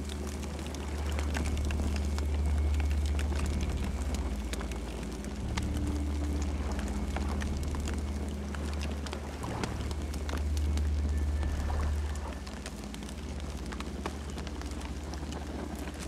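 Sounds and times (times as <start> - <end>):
campfire crackling and popping: 0.0 - 16.0
low rumble: 0.0 - 16.0.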